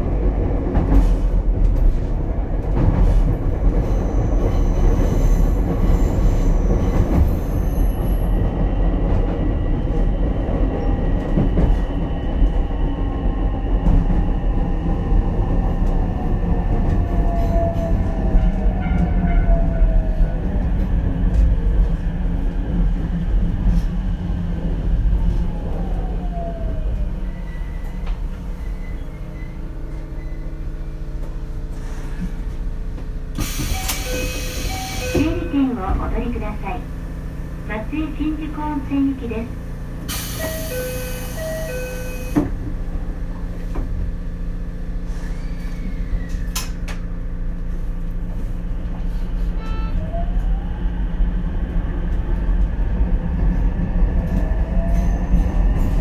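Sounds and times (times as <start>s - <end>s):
train wheel and track rumble: 0.0s - 56.0s
train motor whine: 33.3s - 44.1s.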